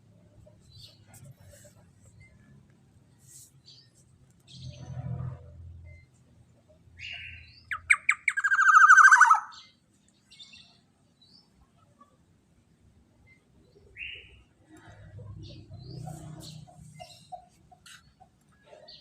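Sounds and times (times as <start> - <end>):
bird calling harshly: 7.0 - 9.6
sharp bird notes: 7.0 - 9.8.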